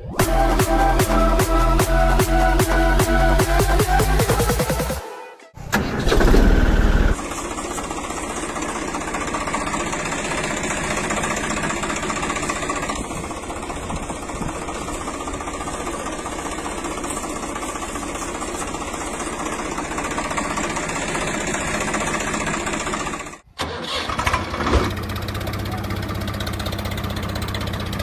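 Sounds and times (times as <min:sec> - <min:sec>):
engine running: 0:00.0 - 0:28.0.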